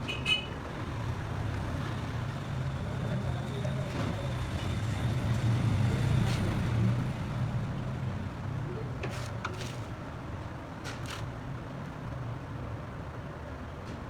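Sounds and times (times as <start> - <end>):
vehicle engine humming: 0.0 - 10.3.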